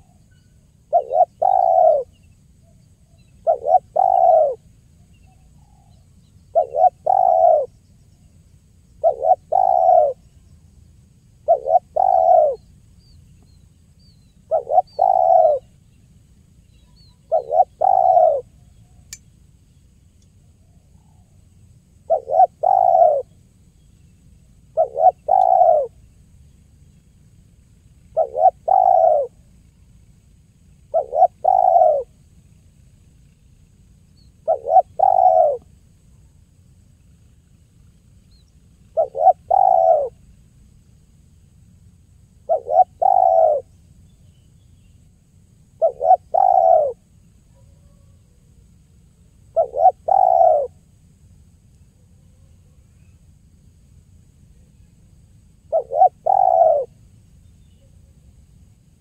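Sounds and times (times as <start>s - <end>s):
dove cooing: 0.9s - 2.2s, 3.4s - 4.7s, 5.6s - 7.7s, 9.0s - 10.2s, 11.4s - 12.7s, 14.4s - 15.7s, 17.0s - 18.6s, 22.0s - 23.4s, 24.7s - 26.0s, 28.0s - 29.4s, 30.9s - 32.2s, 34.4s - 35.7s, 38.8s - 40.2s, 42.4s - 43.7s, 45.8s - 48.6s, 49.5s - 50.8s, 55.7s - 57.0s.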